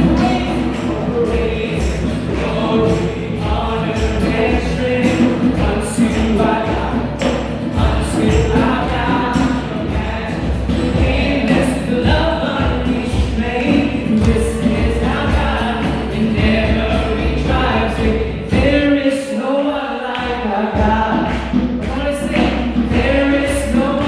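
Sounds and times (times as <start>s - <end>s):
band with bass beat: 0.0s - 18.9s.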